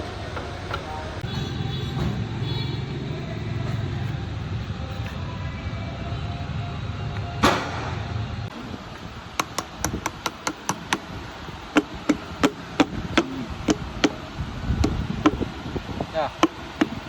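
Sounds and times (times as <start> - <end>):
steady low rumble: 2.2 - 17.0
sharp metal strikes: 7.4 - 8.1.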